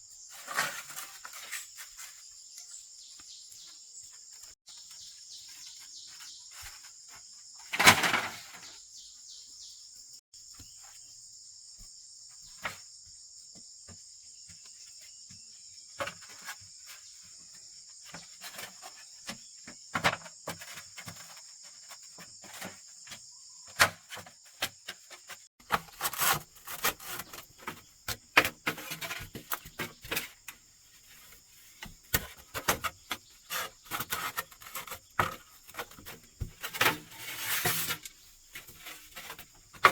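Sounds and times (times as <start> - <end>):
knocks and rustles of handwork: 13.5 - 39.9.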